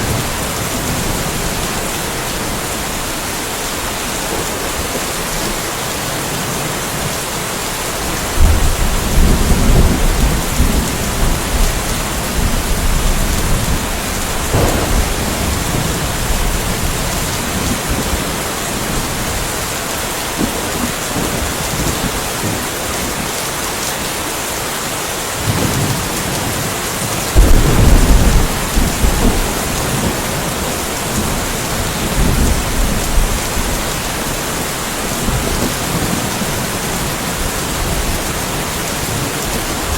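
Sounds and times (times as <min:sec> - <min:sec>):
steady rain falling: 0:00.0 - 0:39.9
thunder rolling: 0:08.4 - 0:19.3, 0:27.4 - 0:33.7.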